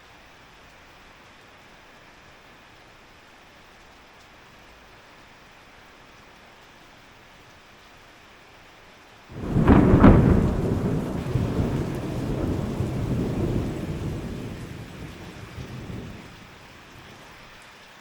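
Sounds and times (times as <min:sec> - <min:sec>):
rain falling: 0:00.0 - 0:18.0
thunderclap rumbling: 0:09.3 - 0:17.4.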